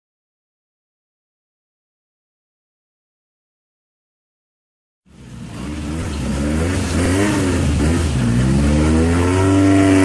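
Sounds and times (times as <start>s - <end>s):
rally car engine revving: 5.1s - 10.0s.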